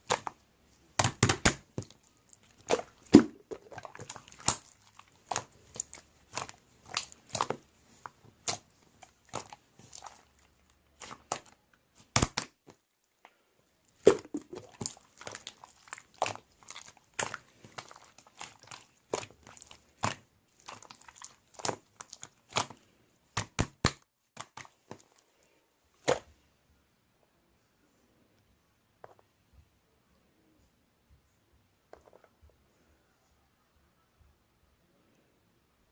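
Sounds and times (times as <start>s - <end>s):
slime squeezed by hand: 14.0s - 22.8s.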